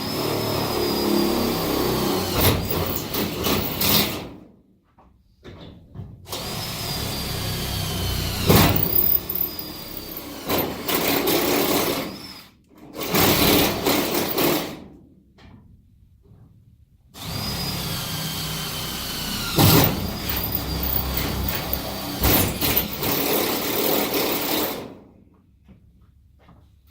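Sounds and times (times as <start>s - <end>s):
power drill whining: 0.0s - 4.2s, 6.4s - 14.5s, 17.2s - 24.8s.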